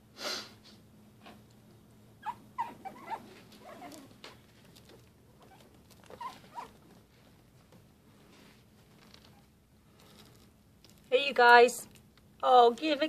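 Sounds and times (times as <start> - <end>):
puppies whimpering: 2.2 - 4.1.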